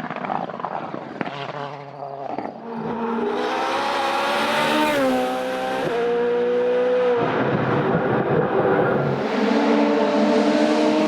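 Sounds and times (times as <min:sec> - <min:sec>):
race car engine revving hard: 0:02.8 - 0:11.0.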